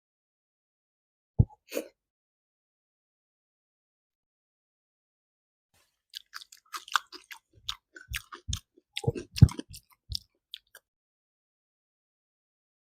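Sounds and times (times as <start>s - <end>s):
person chewing food: 5.8s - 10.9s.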